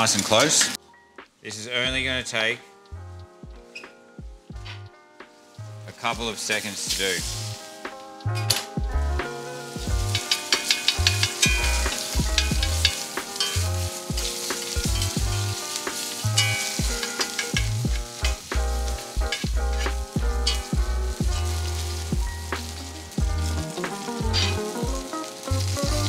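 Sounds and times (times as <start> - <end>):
steak sizzling in fat: 0.0 - 0.8, 3.6 - 26.0
spoon stirring in pan: 9.6 - 26.0.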